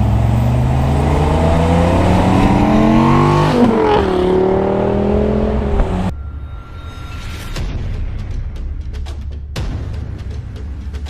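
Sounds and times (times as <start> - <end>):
car engine accelerating past: 0.0 - 6.1.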